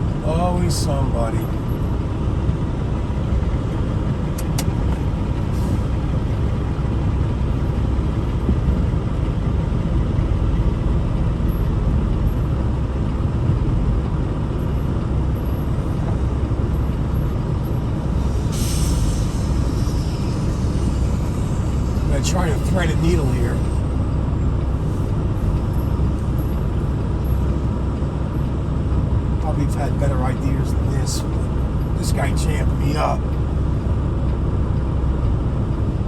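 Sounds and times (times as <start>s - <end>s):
diesel truck engine running: 0.0s - 36.0s
air brakes hiss: 5.5s - 5.9s, 18.1s - 23.8s.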